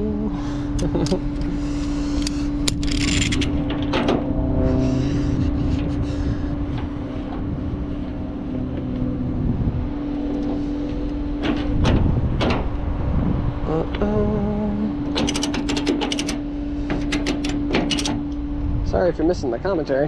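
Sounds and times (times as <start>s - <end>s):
engine hum: 0.0s - 20.0s
road rumble: 0.0s - 20.0s
sharp knocks and rattles: 11.4s - 12.7s, 15.2s - 18.3s.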